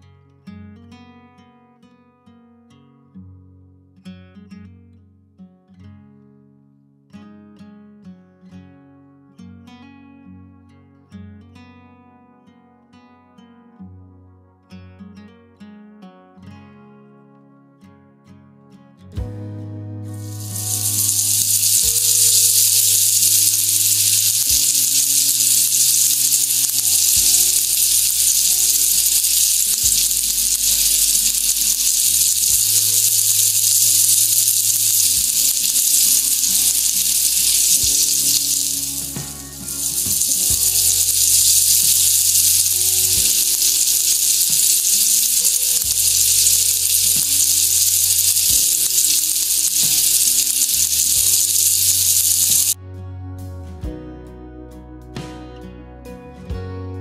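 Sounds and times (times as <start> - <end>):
low background music: 19.2 - 21.8
chicken frying in hot oil: 20.2 - 52.8.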